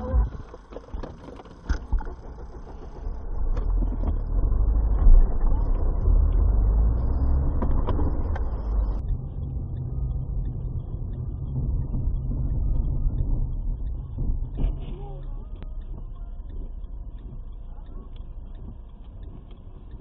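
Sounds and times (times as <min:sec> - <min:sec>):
car engine rumble: 0:00.0 - 0:20.0
road noise: 0:00.0 - 0:20.0.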